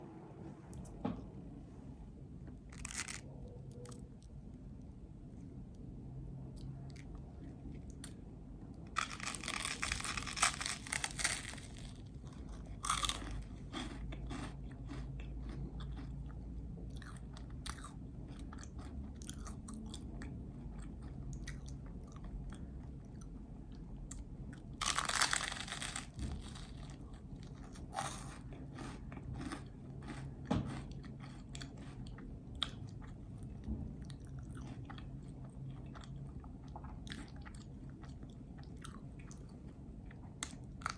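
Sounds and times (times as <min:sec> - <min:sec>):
steady low hum: 0:00.0 - 0:40.9
chewing and mouth clicks: 0:06.6 - 0:25.9, 0:27.5 - 0:40.9.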